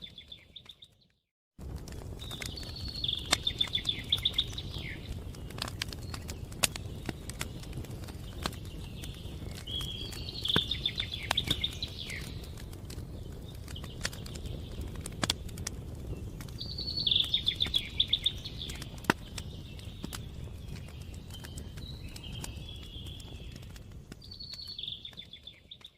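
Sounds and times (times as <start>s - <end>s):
wood fire crackling: 0.0s - 25.9s
songbird trilling: 2.4s - 5.1s, 9.7s - 12.4s, 16.6s - 19.0s.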